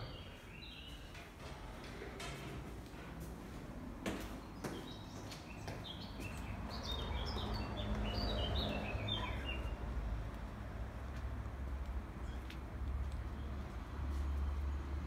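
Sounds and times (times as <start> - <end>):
songbird chirping: 0.0 - 1.6, 4.2 - 10.0.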